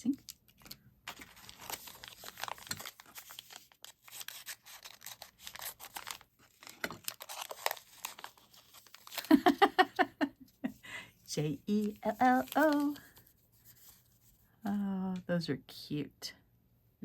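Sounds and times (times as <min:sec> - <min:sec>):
plastic wrapping crinkling: 0:00.0 - 0:10.1, 0:11.5 - 0:14.0.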